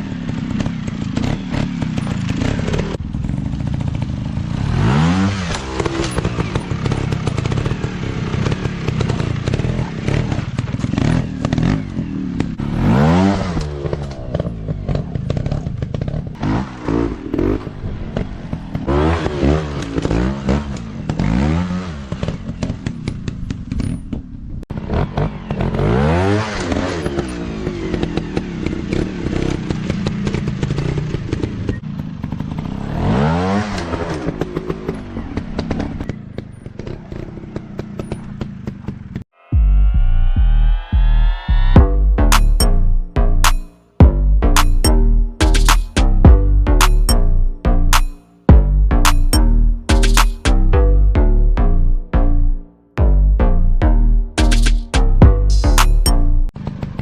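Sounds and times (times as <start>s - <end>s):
motorcycle engines revving: 0.0s - 39.3s, 54.3s - 57.0s.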